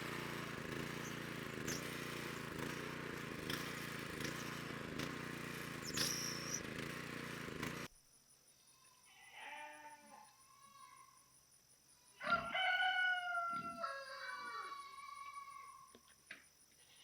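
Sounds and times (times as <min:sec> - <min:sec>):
loud mechanical noise: 0:00.0 - 0:07.9.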